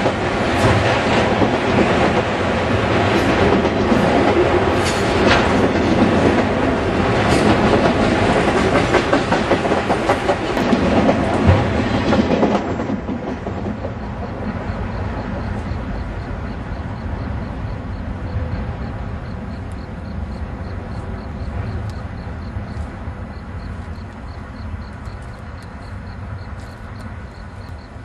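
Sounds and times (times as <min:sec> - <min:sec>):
freight train wheels clattering: 0:00.0 - 0:28.0.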